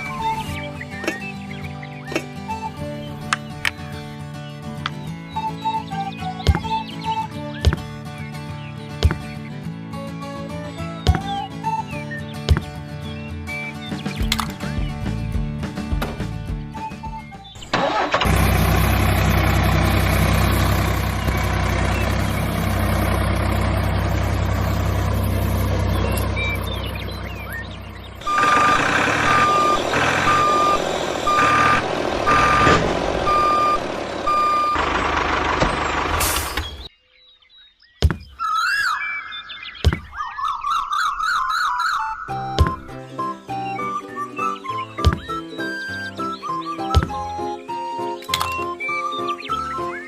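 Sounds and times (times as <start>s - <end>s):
vehicle engine running: 17.7s - 36.9s
reversing alarm beeping: 23.0s - 36.8s
warbling whistles: 28.2s - 34.8s
clicks: 48.2s - 48.7s.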